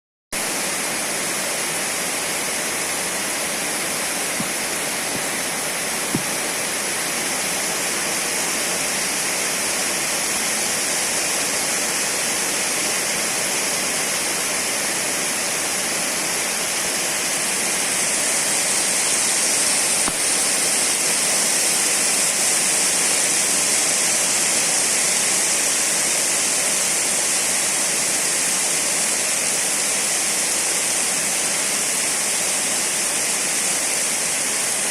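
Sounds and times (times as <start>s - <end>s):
heavy rain pouring: 0.4s - 25.7s.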